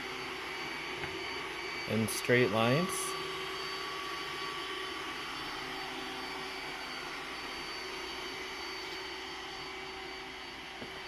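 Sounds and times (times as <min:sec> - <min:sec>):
robot vacuum running: 0:00.0 - 0:11.0.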